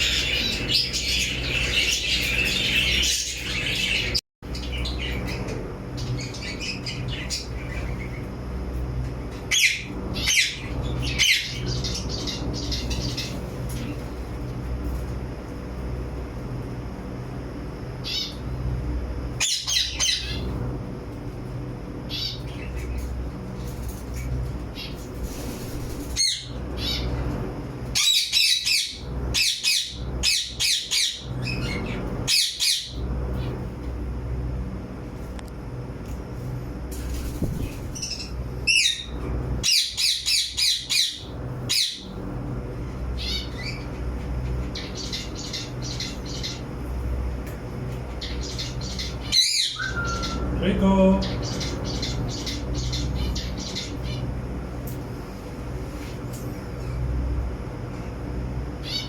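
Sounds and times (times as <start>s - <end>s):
parrots squawking: 0.0s - 5.4s, 38.0s - 42.1s, 48.2s - 54.3s
parakeets squawking: 0.0s - 8.3s, 9.4s - 13.9s, 19.4s - 20.6s, 24.7s - 27.2s, 28.0s - 33.6s, 37.6s - 42.2s, 43.2s - 46.8s, 48.0s - 54.4s, 58.8s - 59.0s
steady low hum: 0.0s - 59.0s.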